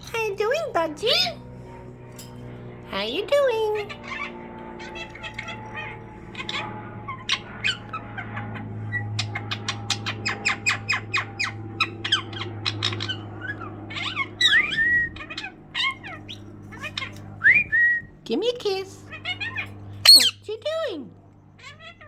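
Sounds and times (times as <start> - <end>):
low steady hum: 0.0 - 22.0
budgerigars chirping: 3.7 - 17.2, 19.1 - 20.4
budgerigar warbling whistles: 12.1 - 18.1, 19.5 - 20.4.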